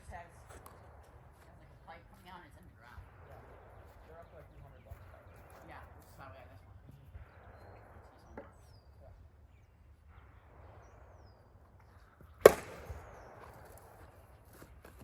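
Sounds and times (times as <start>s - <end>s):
plastic bat striking ball: 12.4s - 13.8s.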